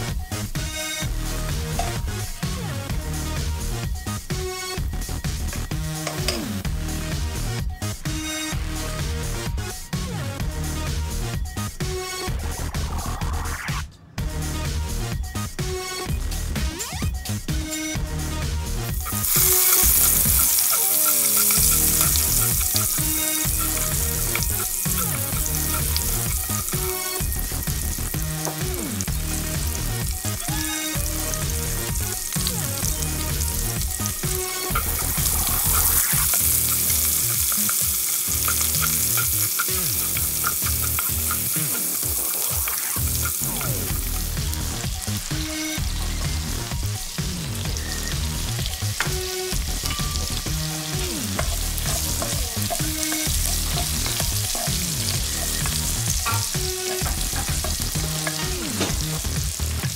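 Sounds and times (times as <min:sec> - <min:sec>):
spoon scraping and tapping pot: 0:06.0 - 0:06.5, 0:34.6 - 0:41.6, 0:51.4 - 0:58.9
onion sizzling in fat: 0:18.8 - 0:59.9.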